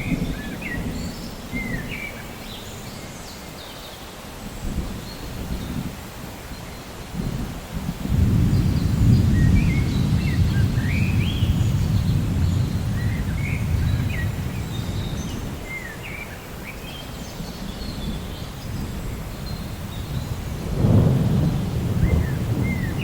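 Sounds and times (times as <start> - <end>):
rolling thunder: 0.0 - 2.0, 7.1 - 15.7, 17.6 - 23.0
birds chirping: 0.0 - 5.9, 8.1 - 23.0.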